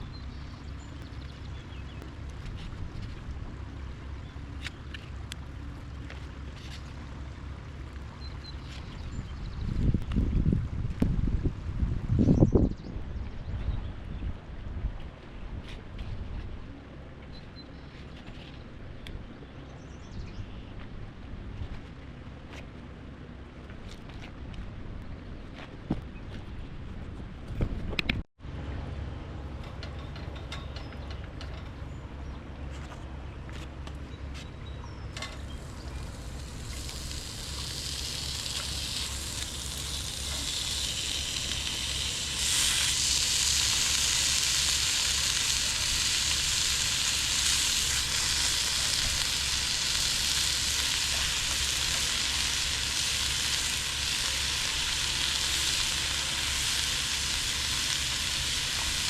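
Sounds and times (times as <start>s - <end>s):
bacon sizzling in a frying pan: 35.4s - 59.0s.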